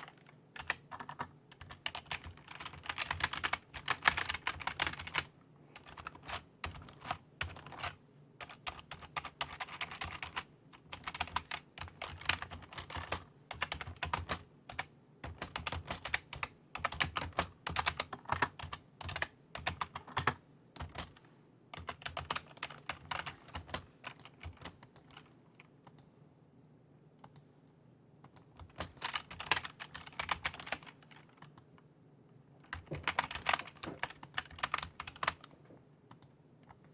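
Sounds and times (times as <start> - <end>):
keyboard typing clicks: 21.8 - 31.9, 32.6 - 36.9.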